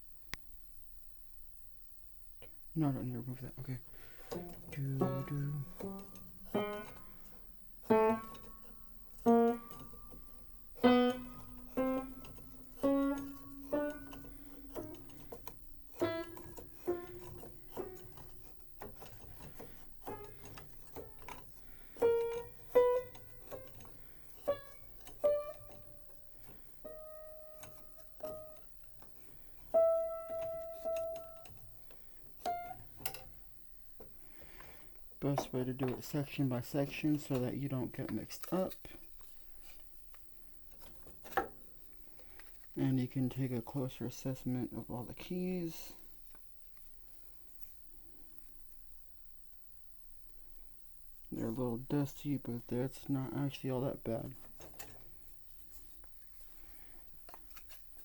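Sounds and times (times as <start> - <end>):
piano single notes: 4.2 - 34.2.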